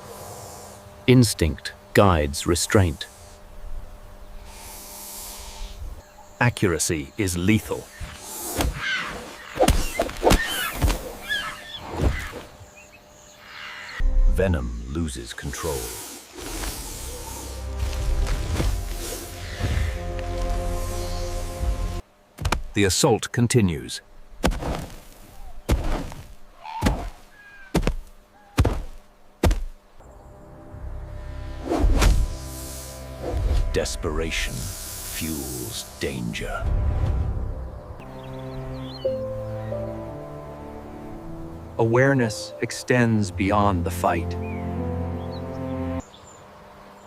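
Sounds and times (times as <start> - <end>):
bird kicks dull thuds: 22.4 - 22.8, 24.4 - 29.8.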